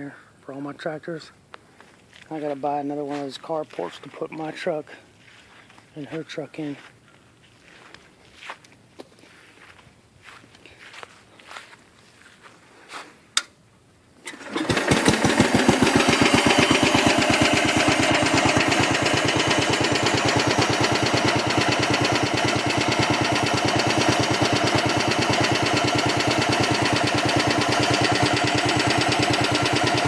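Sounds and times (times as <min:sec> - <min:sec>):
soft footsteps: 0:01.6 - 0:04.5, 0:05.2 - 0:13.2
small tractor engine running: 0:14.2 - 0:30.0.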